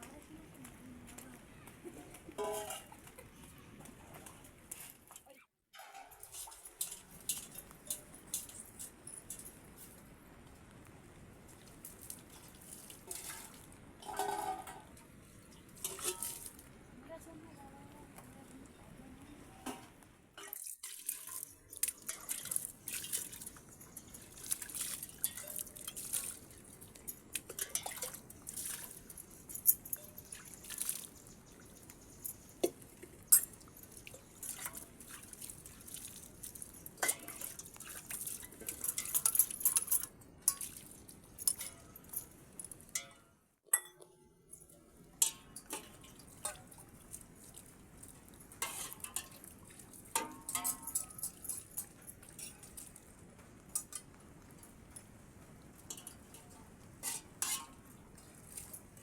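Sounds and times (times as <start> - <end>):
water dripping: 6.0 - 9.7, 19.7 - 59.0
small clinks: 27.0 - 34.8, 36.3 - 46.8, 50.2 - 53.0.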